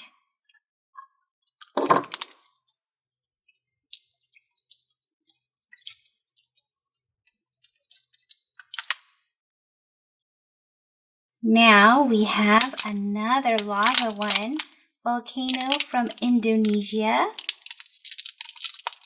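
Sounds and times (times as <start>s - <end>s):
small clicks and pops: 12.6s - 13.0s, 13.6s - 14.8s, 15.4s - 19.0s
slime squelching: 12.6s - 14.8s, 15.4s - 19.0s.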